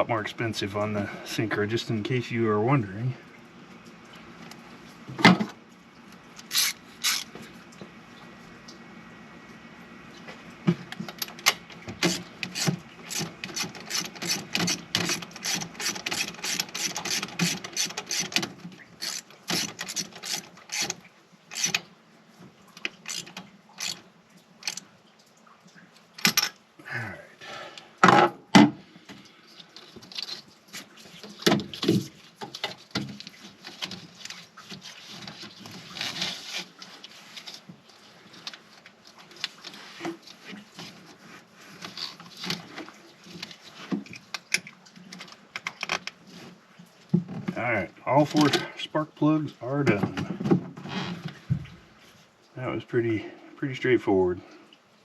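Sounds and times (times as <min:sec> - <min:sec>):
ratchet wrench clicking: 0:06.5 - 0:07.3, 0:19.0 - 0:20.9, 0:21.5 - 0:21.8, 0:23.1 - 0:24.0.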